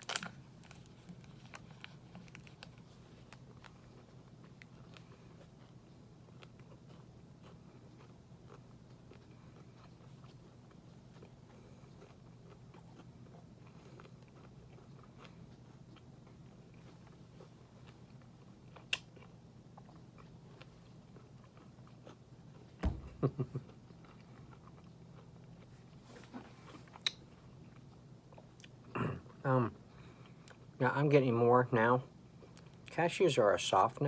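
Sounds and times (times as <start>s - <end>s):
person chewing granola bar: 0.0s - 30.8s
low steady hum: 0.0s - 34.0s.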